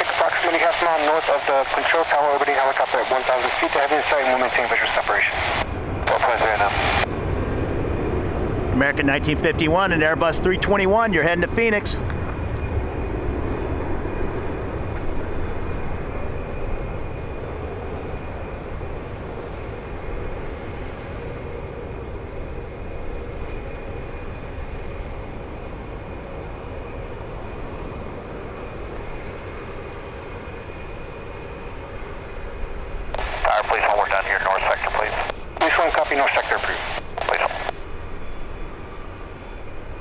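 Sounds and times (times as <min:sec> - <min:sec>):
faint jet engine whine: 0:00.0 - 0:40.0
jet engines rumbling: 0:00.0 - 0:40.0.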